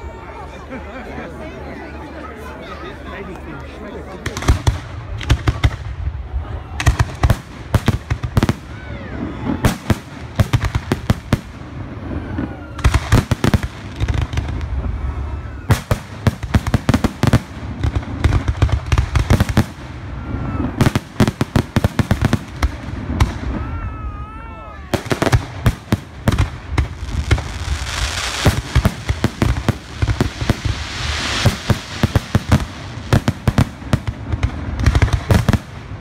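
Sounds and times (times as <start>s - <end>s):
fireworks bangs and crackling: 4.1s - 36.0s.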